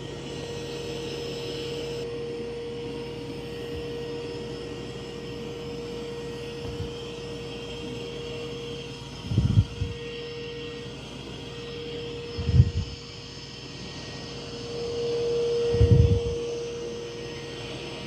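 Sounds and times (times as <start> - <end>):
robot vacuum fan whine: 0.0 - 18.0.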